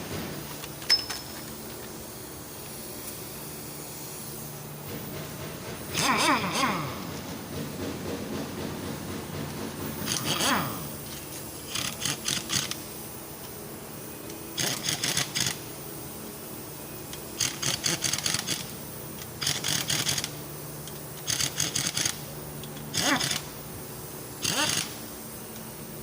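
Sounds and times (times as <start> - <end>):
steady low hum: 0.0 - 26.0
ratchet wrench clicking: 10.0 - 10.5, 11.7 - 12.8, 14.6 - 15.6, 17.1 - 23.5, 24.4 - 25.0.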